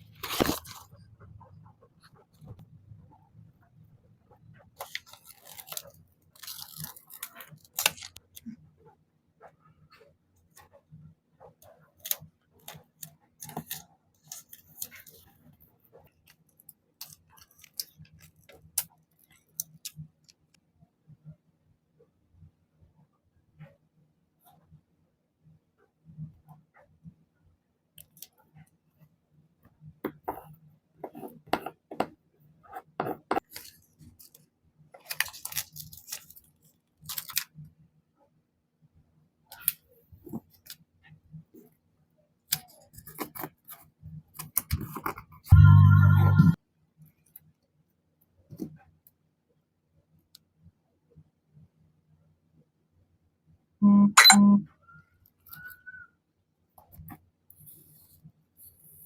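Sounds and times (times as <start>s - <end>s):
paper rustling: 0.1s - 0.9s
scissors snipping paper: 4.8s - 8.2s, 12.0s - 15.3s.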